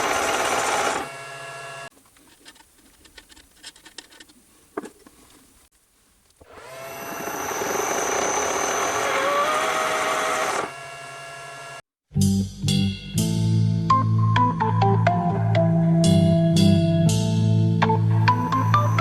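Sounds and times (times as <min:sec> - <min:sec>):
lathe cutting with a whine: 0:00.0 - 0:01.9, 0:06.5 - 0:11.8.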